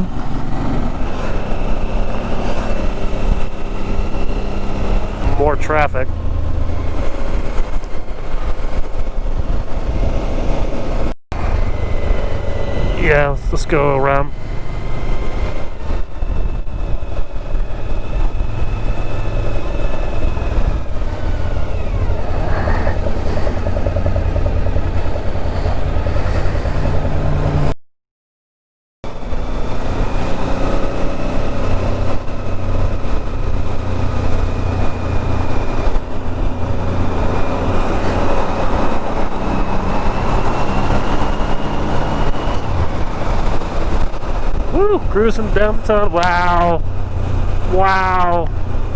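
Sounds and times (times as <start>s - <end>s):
motorcycle engine running: 0.0s - 27.7s, 29.1s - 48.9s
road noise: 0.0s - 27.8s, 29.0s - 48.9s.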